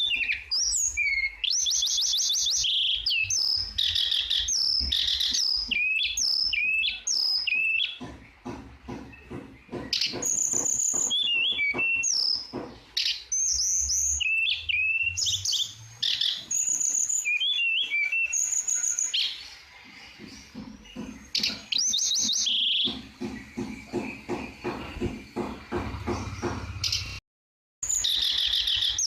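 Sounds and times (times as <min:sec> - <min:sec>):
flycatcher singing whistled notes: 0:00.0 - 0:08.0, 0:10.0 - 0:19.4, 0:21.3 - 0:23.0.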